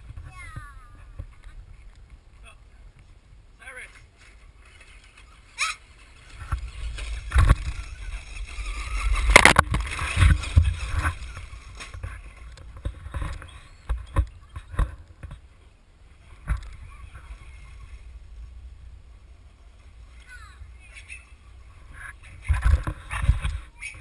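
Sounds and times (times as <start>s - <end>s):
rc trucks rumbling over rough ground: 6.0s - 24.0s.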